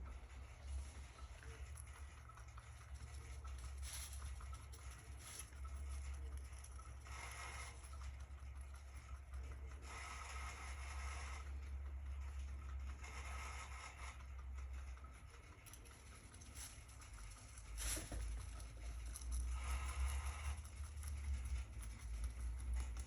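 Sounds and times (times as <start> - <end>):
rabbit chewing grass: 0.0 - 23.0
soft rustling: 0.3 - 7.0, 16.1 - 19.4.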